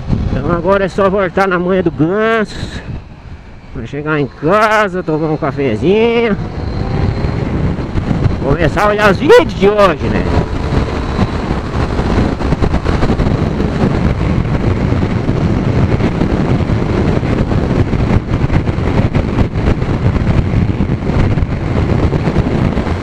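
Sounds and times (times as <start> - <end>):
wind buffeting microphone: 0.0 - 23.0
motorcycle engine running: 2.9 - 23.0.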